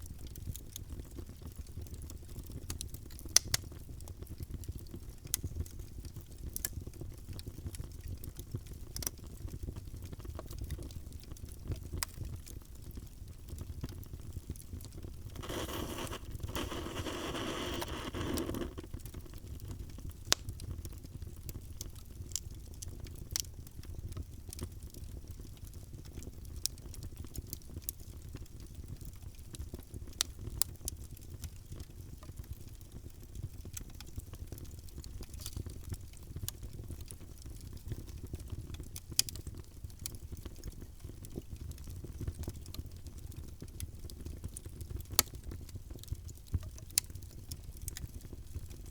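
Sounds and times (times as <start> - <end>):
fire crackling in fireplace: 0.0 - 48.9
fire hissing: 15.3 - 18.8.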